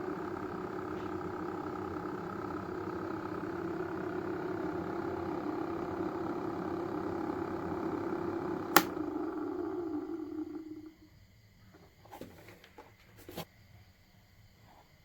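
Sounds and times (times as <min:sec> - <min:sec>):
electric fan motor humming: 0:00.0 - 0:11.0
sharp click: 0:08.7 - 0:09.0.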